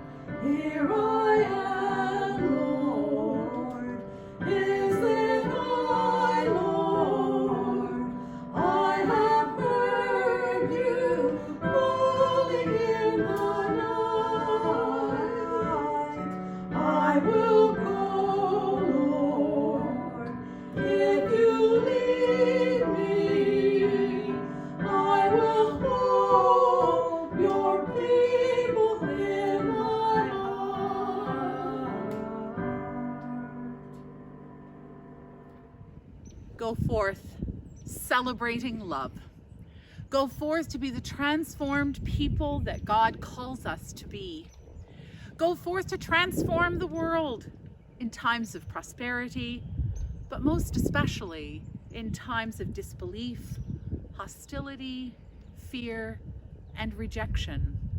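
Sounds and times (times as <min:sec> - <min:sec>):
person singing with vibrato: 0:00.0 - 0:34.0.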